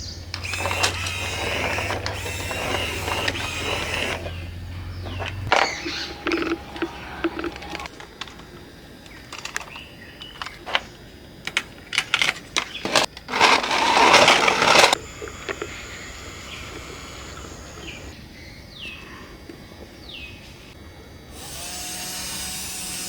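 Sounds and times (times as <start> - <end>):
loud rasping noise: 0.0 - 7.9, 13.3 - 18.2
hard parts clicking and knocking: 0.0 - 18.1.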